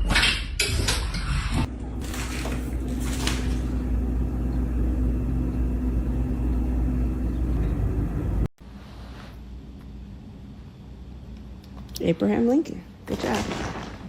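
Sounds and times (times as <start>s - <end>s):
low motor rumble: 1.7s - 8.5s.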